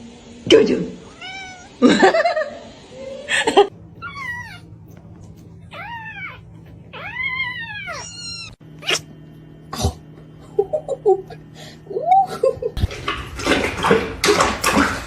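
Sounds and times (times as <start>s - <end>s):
cat chirping meows: 1.1s - 1.7s, 4.0s - 4.7s, 5.7s - 9.1s
cat meowing: 1.1s - 1.8s, 4.0s - 4.7s, 5.6s - 9.1s.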